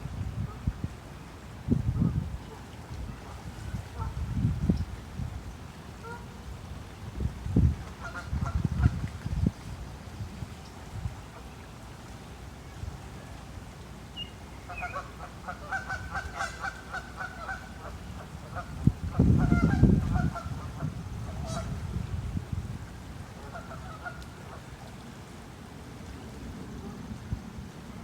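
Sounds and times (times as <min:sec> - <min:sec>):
birds calling: 0:14.2 - 0:15.1.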